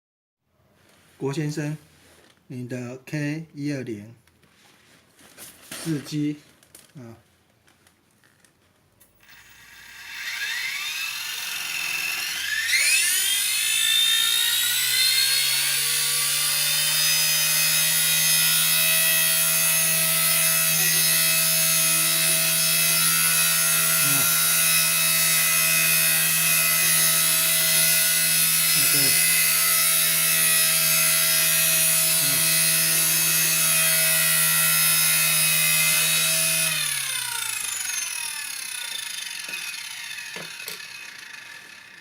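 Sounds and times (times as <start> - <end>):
toy helicopter rotor whine: 9.0 - 42.0.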